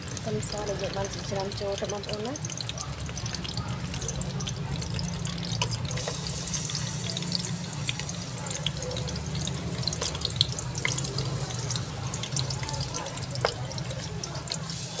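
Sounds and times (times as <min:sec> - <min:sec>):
meat sizzling in a wok: 0:00.0 - 0:15.0.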